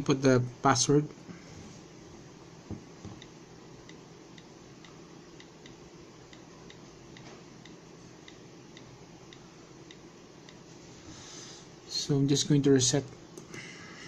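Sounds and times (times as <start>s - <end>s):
low room hum: 0.0s - 14.0s
faint regular ticking: 3.1s - 10.7s.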